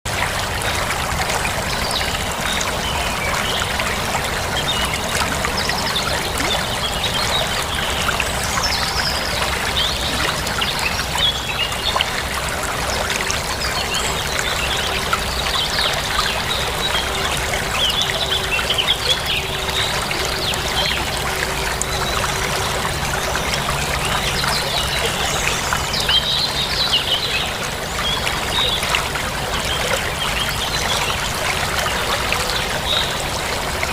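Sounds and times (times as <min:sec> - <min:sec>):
running water: 0:00.1 - 0:33.9
birds chirping: 0:01.9 - 0:28.8.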